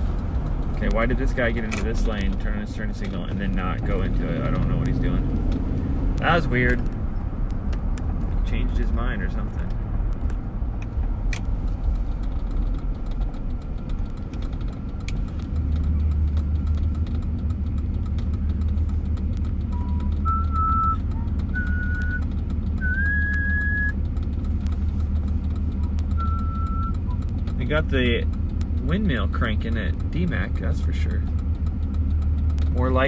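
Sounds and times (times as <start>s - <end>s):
car road and engine rumble: 0.0s - 33.0s
short high whistled notes: 19.9s - 22.2s, 22.8s - 23.9s.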